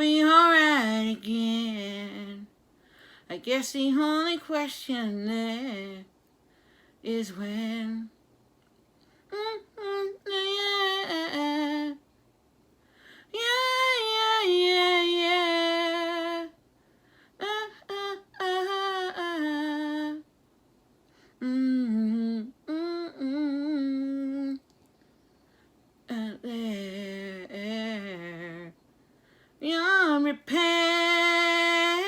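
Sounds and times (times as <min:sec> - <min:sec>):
woman singing unaccompanied: 0:00.0 - 0:02.6, 0:03.2 - 0:06.1, 0:07.0 - 0:08.2, 0:09.2 - 0:12.1, 0:13.2 - 0:16.6, 0:17.4 - 0:20.3, 0:21.3 - 0:24.7, 0:26.0 - 0:28.8, 0:29.6 - 0:32.0.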